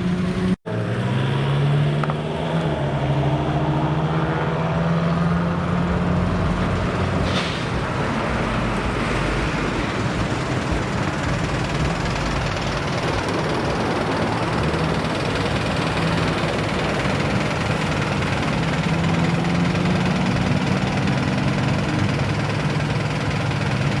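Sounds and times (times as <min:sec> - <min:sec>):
car engine rough drone: 0:00.0 - 0:24.0
brief hiss: 0:07.2 - 0:08.0.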